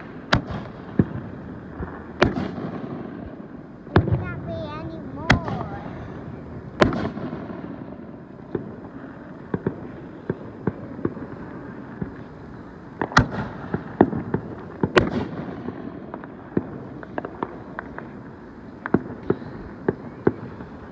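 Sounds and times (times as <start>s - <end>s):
small firework pops: 0.0s - 4.6s, 5.2s - 6.2s, 6.8s - 12.4s, 13.0s - 20.9s
loud firework bangs: 0.0s - 20.9s.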